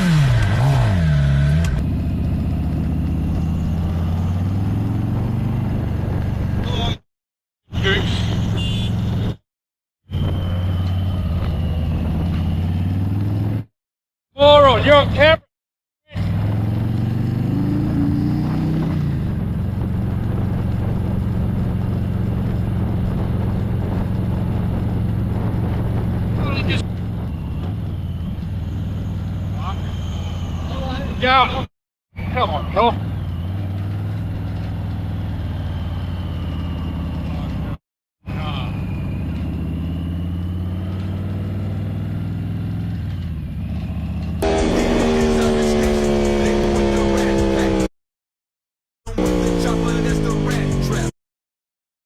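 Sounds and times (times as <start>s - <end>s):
vehicle engine running: 0.0s - 7.0s, 16.1s - 31.6s, 32.2s - 47.9s, 49.1s - 51.1s.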